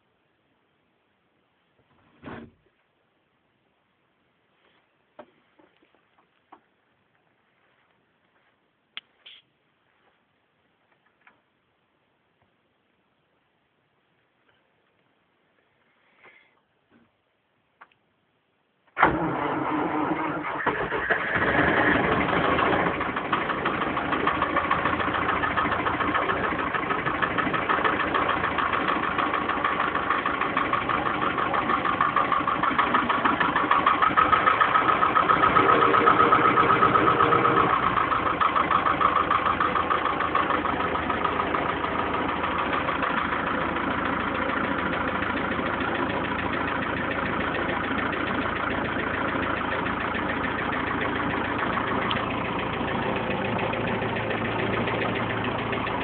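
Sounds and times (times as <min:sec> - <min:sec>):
tractor diesel engine idling: 0:19.0 - 0:56.0.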